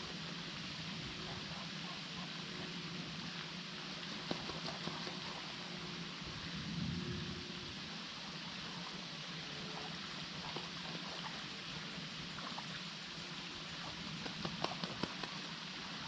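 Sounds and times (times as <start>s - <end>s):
flowing water: 0.0s - 16.0s.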